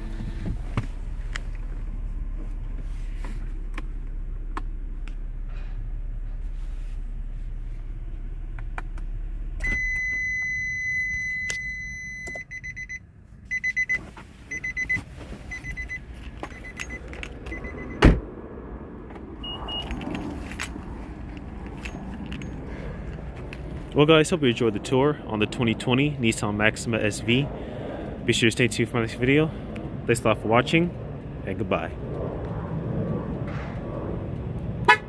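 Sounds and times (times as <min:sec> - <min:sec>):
car engine running: 0:00.0 - 0:11.0, 0:13.1 - 0:35.0
car warning chime beeps: 0:09.6 - 0:18.1, 0:19.4 - 0:19.9
car door shutting: 0:16.3 - 0:18.3
brief higher beep: 0:19.4 - 0:19.9.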